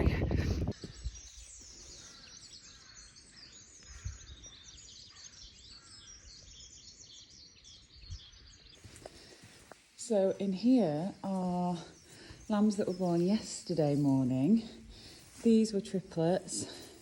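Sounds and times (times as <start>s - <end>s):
low wind rumble: 0.0s - 1.3s
songbirds chirping and twittering: 0.0s - 17.0s.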